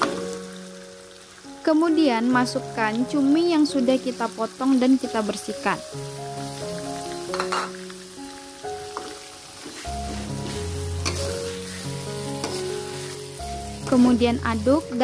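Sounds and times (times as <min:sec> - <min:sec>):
squid sizzling in a wok: 0:00.0 - 0:15.0
metal spatula scraping a pan: 0:08.9 - 0:14.1.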